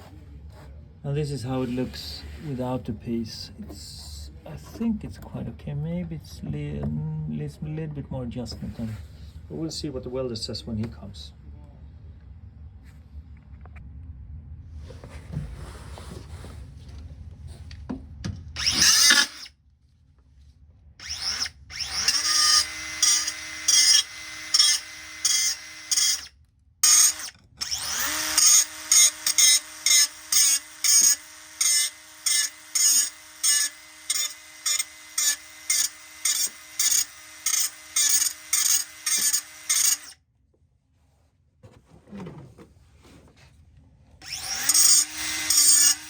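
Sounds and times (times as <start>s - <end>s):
angle grinder grinding steel: 18.6s - 19.5s, 21.0s - 40.2s, 44.2s - 46.0s.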